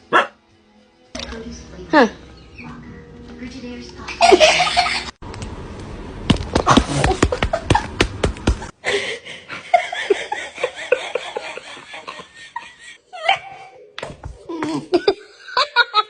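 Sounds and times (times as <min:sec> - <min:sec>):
person laughing: 0:14.5 - 0:16.0.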